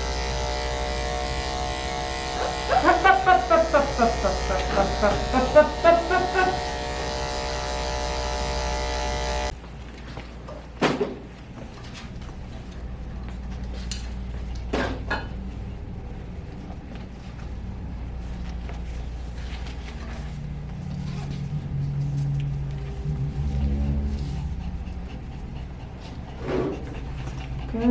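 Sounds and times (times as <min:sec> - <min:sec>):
electric clippers buzzing: 0:00.0 - 0:09.6.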